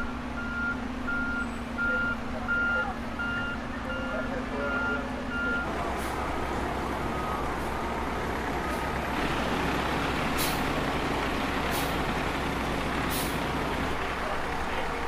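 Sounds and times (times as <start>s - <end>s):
heavy truck engine running: 0.0s - 15.0s
street noise: 0.0s - 15.0s
short air hisses: 10.4s - 10.7s.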